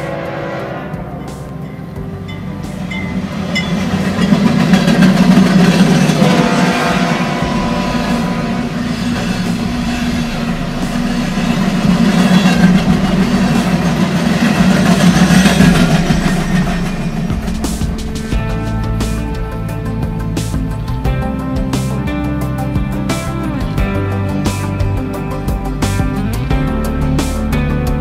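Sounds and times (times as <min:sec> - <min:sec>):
freight train rumbling past: 0:00.0 - 0:28.0.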